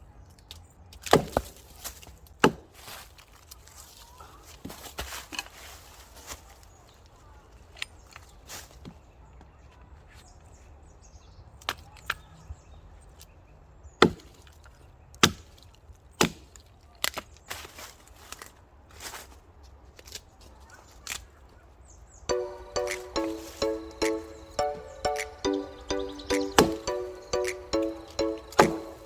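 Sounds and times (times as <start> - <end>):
axe chopping firewood: 1.0 - 3.0, 14.0 - 14.4, 15.2 - 17.2, 26.6 - 26.8, 28.5 - 29.0.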